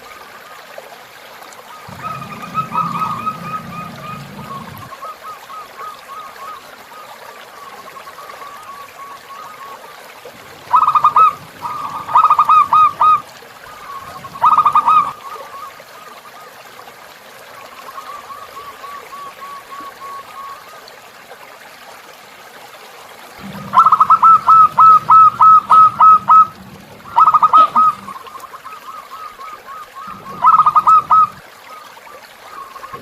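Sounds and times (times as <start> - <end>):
flowing river water: 0.0 - 33.0
doves cooing: 1.7 - 6.7, 10.4 - 15.9, 23.4 - 33.0.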